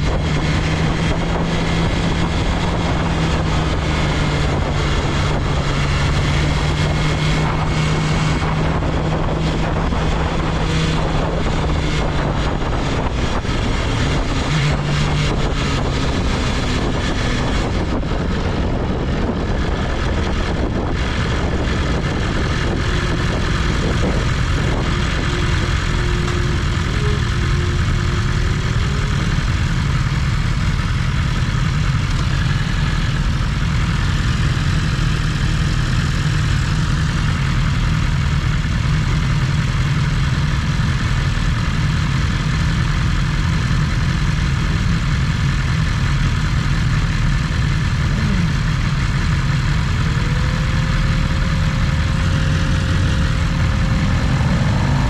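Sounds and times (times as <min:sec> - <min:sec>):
motorcycle engine rumble: 0:00.0 - 0:55.0
wind rushing: 0:51.3 - 0:55.0.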